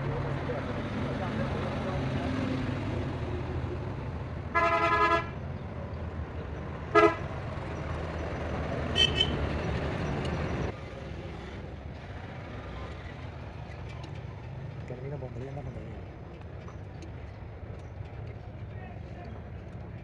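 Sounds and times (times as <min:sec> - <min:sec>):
vehicle horn tooting: 0:04.5 - 0:05.4, 0:06.9 - 0:07.3, 0:08.9 - 0:09.4.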